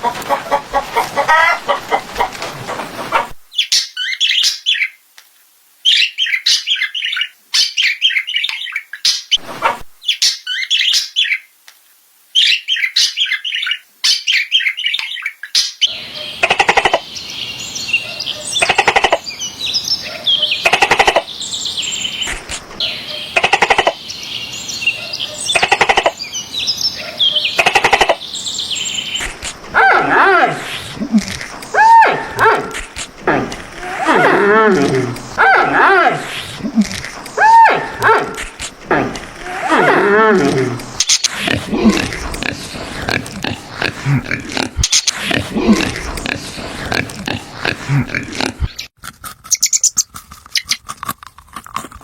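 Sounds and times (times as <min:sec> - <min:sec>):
small birds chirping: 0:05.8 - 0:11.5, 0:12.3 - 0:39.6, 0:40.4 - 0:50.8
harsh bird call: 0:31.7 - 0:36.6, 0:37.3 - 0:41.4.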